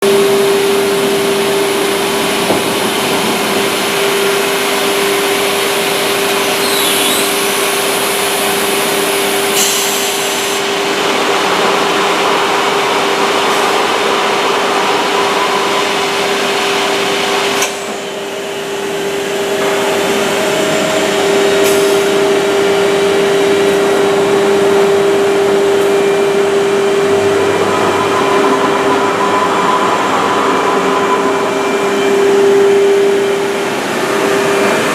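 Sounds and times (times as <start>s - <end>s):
woodworking machine running: 10.2s - 34.9s.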